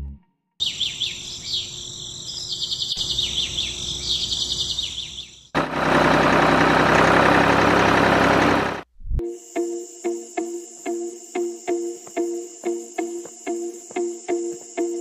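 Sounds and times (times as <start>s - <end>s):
birds chirping and trilling: 0.6s - 5.6s.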